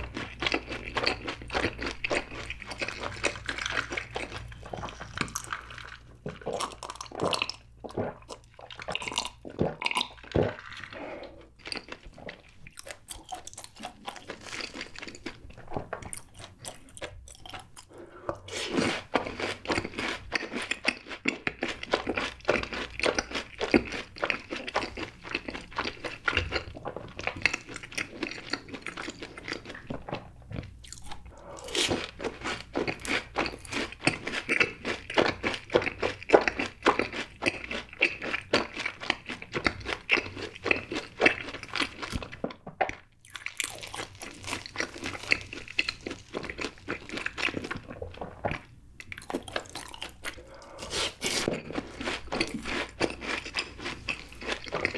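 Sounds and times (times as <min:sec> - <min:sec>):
crunching and chewing fried food: 0:00.0 - 0:54.9.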